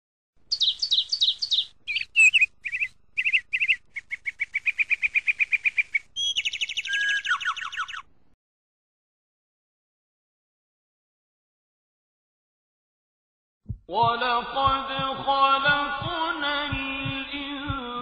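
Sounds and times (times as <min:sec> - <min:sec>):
songbird singing trills: 0:00.5 - 0:08.1.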